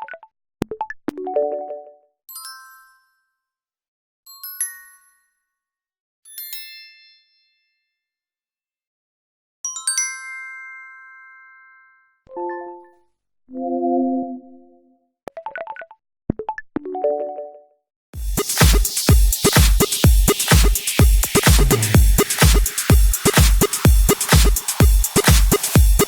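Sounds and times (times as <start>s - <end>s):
low electronic blips: 21.3s - 22.2s.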